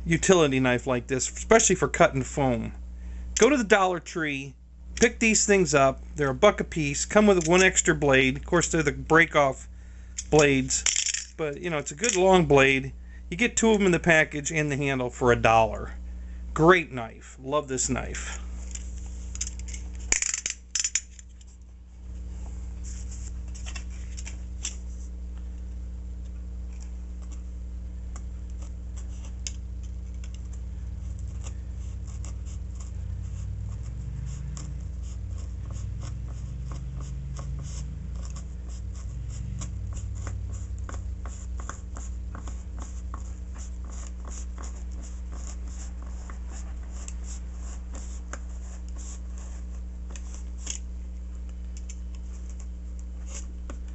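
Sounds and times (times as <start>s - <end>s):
low hum: 17.9s - 53.9s.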